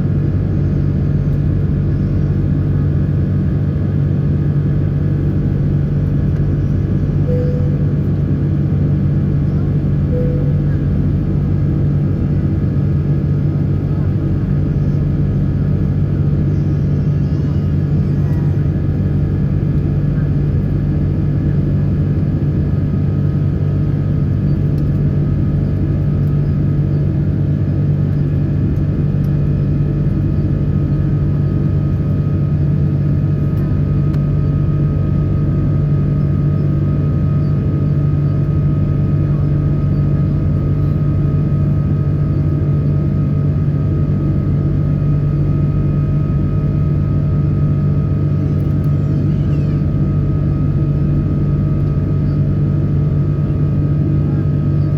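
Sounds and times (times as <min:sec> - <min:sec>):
airliner cabin drone: 0:00.0 - 0:54.9
faint whining tones: 0:06.5 - 0:08.2, 0:09.4 - 0:11.2.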